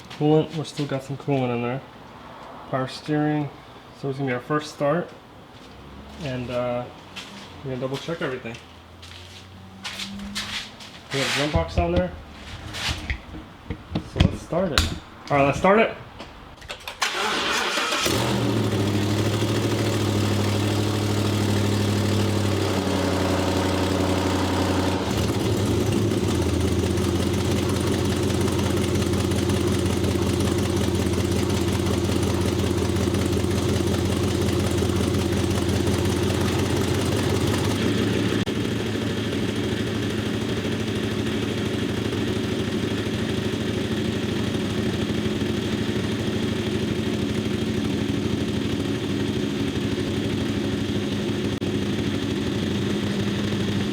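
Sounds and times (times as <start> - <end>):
engine cranking and starting: 16.6 - 38.5
engine idling: 17.0 - 53.9.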